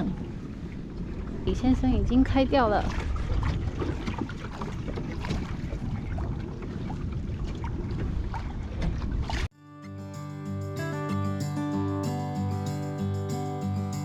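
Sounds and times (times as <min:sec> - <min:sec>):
small water splashes: 0:00.0 - 0:09.5
wind rumbling on microphone: 0:00.0 - 0:09.5.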